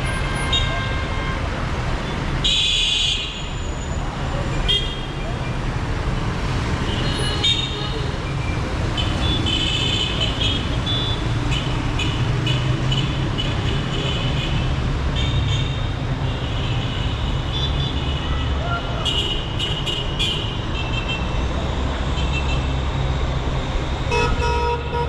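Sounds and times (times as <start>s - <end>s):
traffic rumbling: 0.0s - 25.0s
car horns honking: 24.1s - 25.0s.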